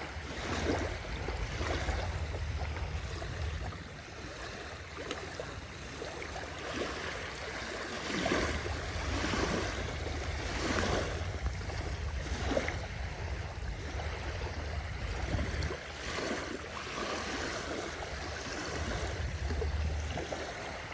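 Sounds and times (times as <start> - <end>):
waves splashing on shore: 0.0 - 20.9
low rumble: 0.1 - 4.1.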